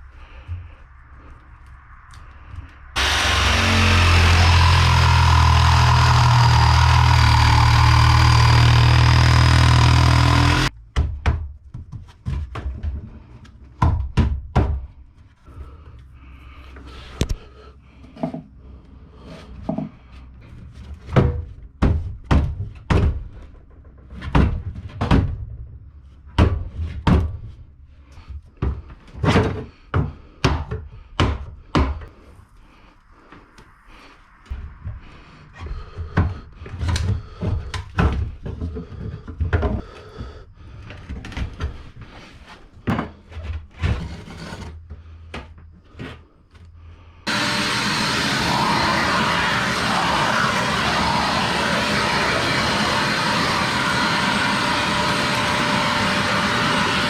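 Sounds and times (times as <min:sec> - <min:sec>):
engine running: 0:03.0 - 0:10.7, 0:47.3 - 0:57.0.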